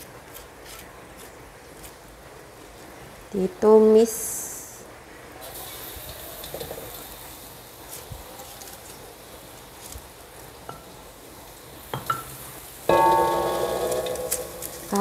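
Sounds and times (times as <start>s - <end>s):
spice paste sizzling in oil: 5.4s - 15.0s.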